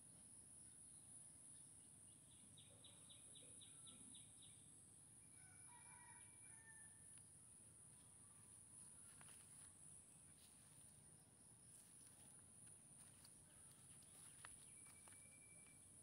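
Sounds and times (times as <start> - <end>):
faint bird chirps: 0.6 - 6.2, 13.0 - 16.0.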